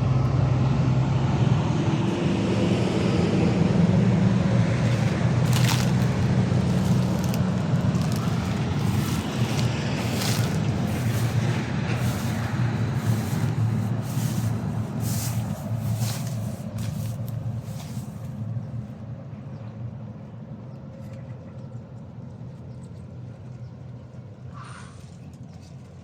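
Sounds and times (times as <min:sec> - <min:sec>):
wind rumbling on microphone: 0:04.3 - 0:18.8
wind rustling leaves: 0:04.6 - 0:18.5.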